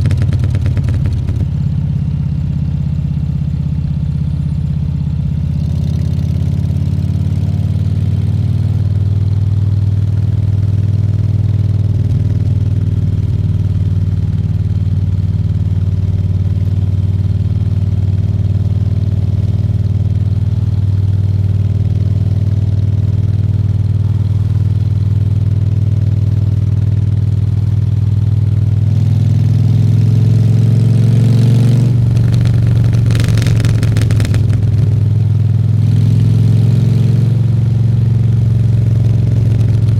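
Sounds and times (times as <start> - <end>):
motorcycle engine running: 0.0 - 39.9
rush of noise: 32.0 - 35.1.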